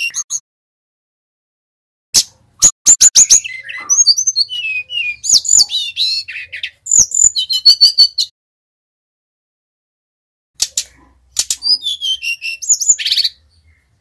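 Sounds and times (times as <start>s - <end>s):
flycatcher singing chirps and whistles: 0.0s - 0.4s, 2.6s - 8.3s, 11.4s - 13.8s.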